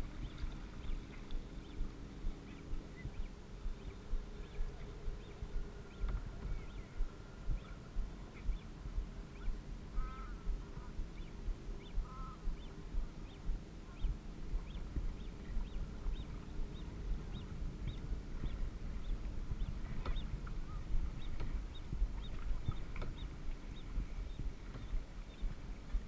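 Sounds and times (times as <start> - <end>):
water rumbling around kayak: 0.0 - 26.0
duck calls: 9.9 - 11.0, 12.0 - 12.5.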